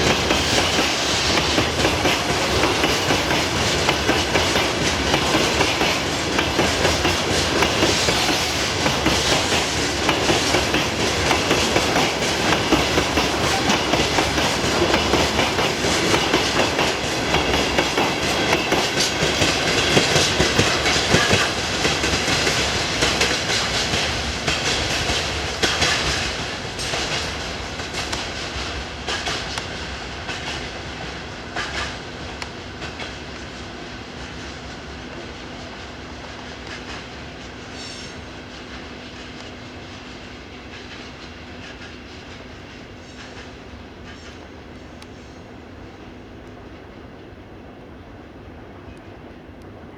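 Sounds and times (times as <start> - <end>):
wheels clacking over rail joints: 0.0 - 30.8
train cars rolling past: 0.0 - 49.9.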